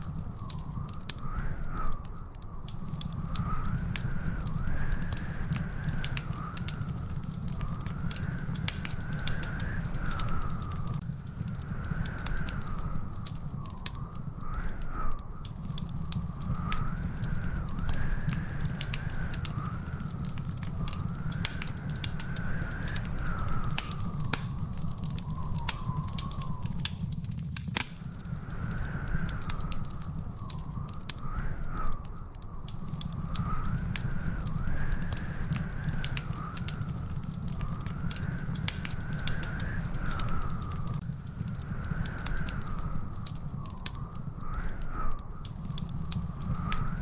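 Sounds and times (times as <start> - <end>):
wood fire crackling: 0.0 - 47.0
thin wavering whistle: 11.9 - 27.2.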